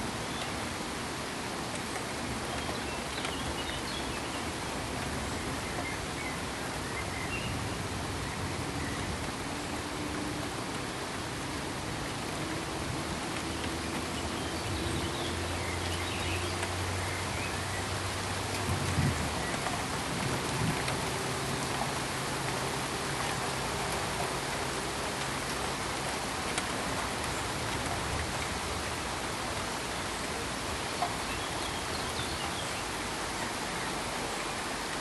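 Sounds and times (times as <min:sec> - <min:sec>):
steady pink noise hiss: 0:00.0 - 0:35.0.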